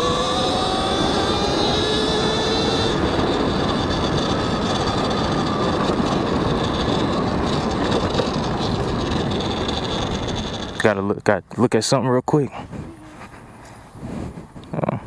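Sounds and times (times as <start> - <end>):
electric motor whine: 0.0 - 10.9
wind rush and tyre noise: 0.0 - 11.1.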